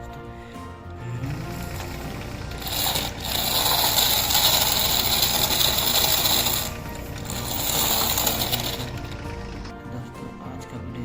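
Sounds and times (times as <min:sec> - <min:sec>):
toy tractor motor rattling whir: 0:01.1 - 0:09.7.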